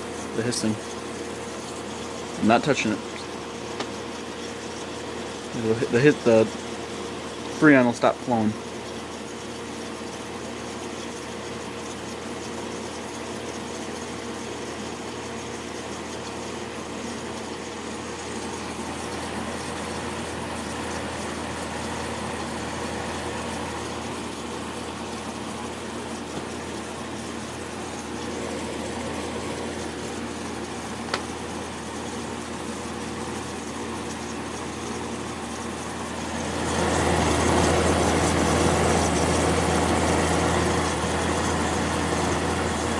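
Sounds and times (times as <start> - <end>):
refrigerant hissing: 0.0 - 3.5
compressor humming: 0.0 - 42.9.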